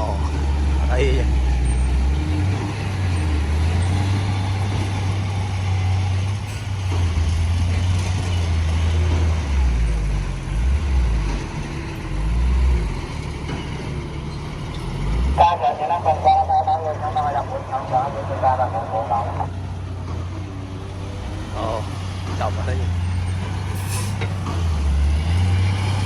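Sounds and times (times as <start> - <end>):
diesel construction machinery rumbling: 0.0 - 26.0.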